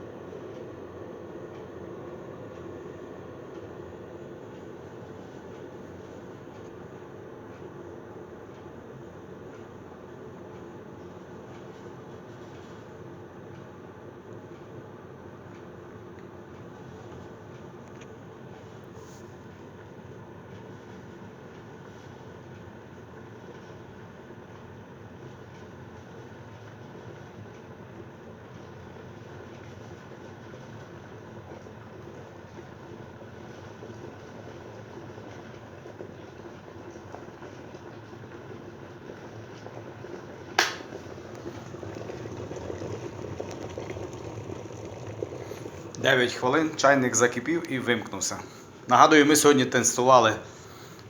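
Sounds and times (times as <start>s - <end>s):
kettle water boiling: 0.0s - 51.0s
kettle switch click: 40.6s - 40.9s.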